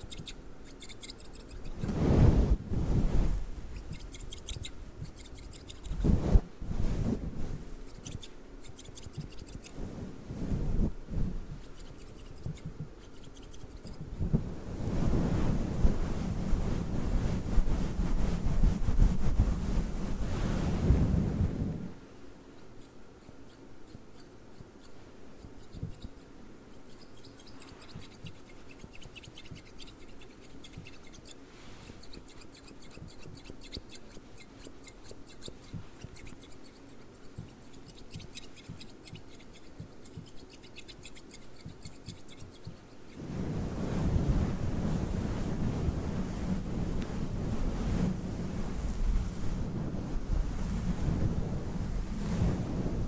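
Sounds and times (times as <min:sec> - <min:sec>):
microphone cover rubbing rumble: 0:01.6 - 0:04.1, 0:05.9 - 0:08.0, 0:09.7 - 0:11.8, 0:13.8 - 0:22.0, 0:43.2 - 0:53.0
scissors snipping: 0:03.8 - 0:06.0, 0:11.6 - 0:14.0.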